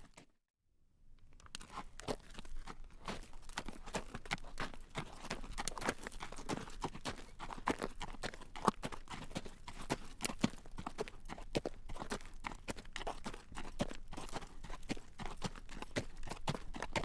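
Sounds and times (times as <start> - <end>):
horse hooves clip-clopping on road: 1.6 - 17.0.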